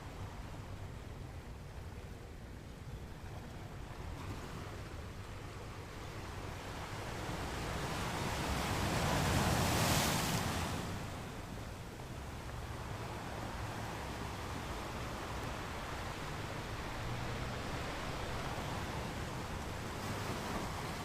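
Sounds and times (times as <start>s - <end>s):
ocean waves breaking: 5.8s - 21.0s.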